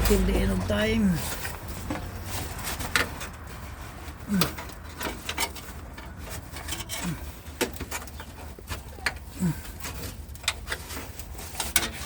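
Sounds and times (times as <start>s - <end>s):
clicks and knocks on metal: 9.8s - 12.0s.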